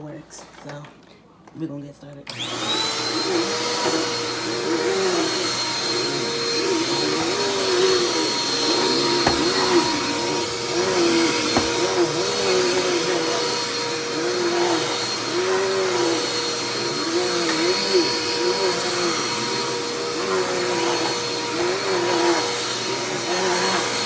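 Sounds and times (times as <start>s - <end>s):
upright vacuum cleaner running: 2.3s - 24.0s
faint knocks: 9.0s - 10.3s, 11.2s - 12.2s.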